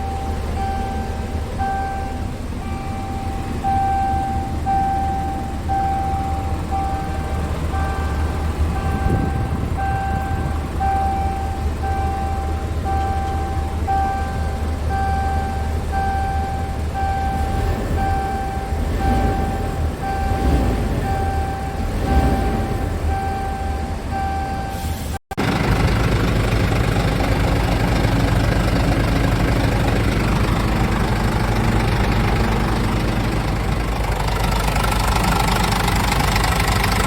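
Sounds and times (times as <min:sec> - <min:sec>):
electronic warning beeps: 0:00.0 - 0:24.9
diesel engine idling: 0:00.0 - 0:37.0.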